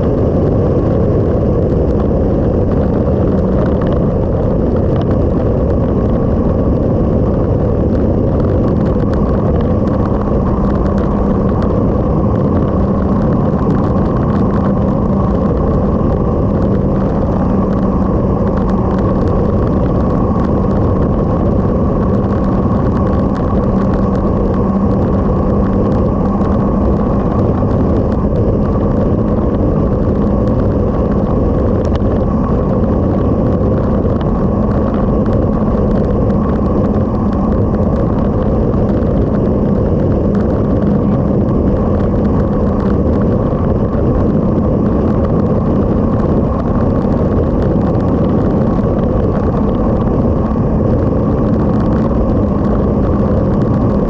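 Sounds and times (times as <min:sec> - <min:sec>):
motorcycle engine cruising: 0:00.0 - 0:54.0
wind rush on microphone: 0:00.0 - 0:54.0.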